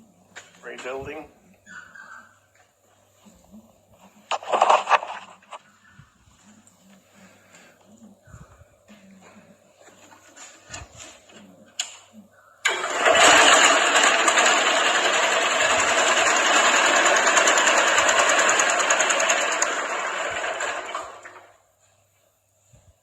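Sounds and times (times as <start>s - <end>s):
garden tractor engine running: 12.6s - 21.6s.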